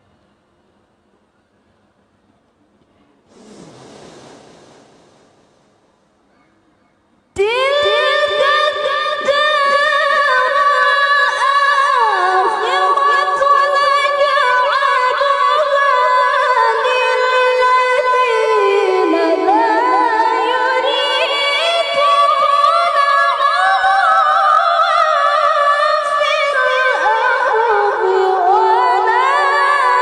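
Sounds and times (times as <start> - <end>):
woman chanting unaccompanied: 7.4 - 30.0.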